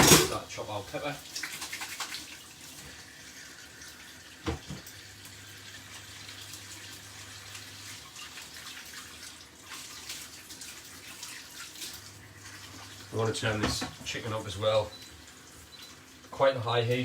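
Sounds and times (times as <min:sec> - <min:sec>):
utensils clattering: 0:00.0 - 0:00.4
kitchen tap running: 0:00.0 - 0:17.0.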